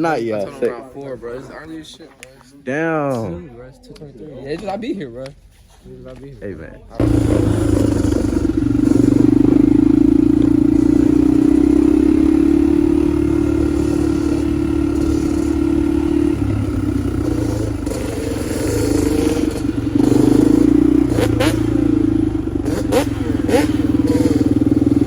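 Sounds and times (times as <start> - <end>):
vehicle engine revving: 7.0 - 25.0.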